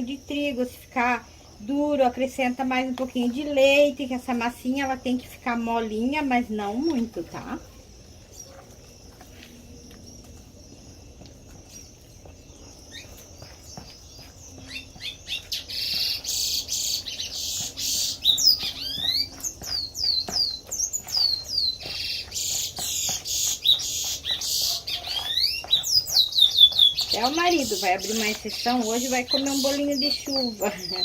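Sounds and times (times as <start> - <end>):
bird chirping and whistling: 14.6 - 31.0.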